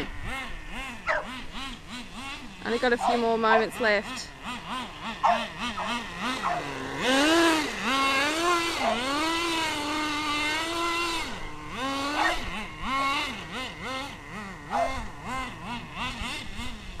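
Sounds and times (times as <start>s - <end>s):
nitro engine revving: 0.0s - 17.0s.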